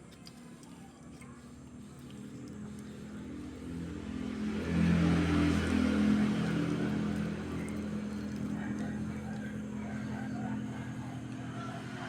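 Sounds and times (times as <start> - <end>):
vehicle engine approaching: 2.6 - 12.0.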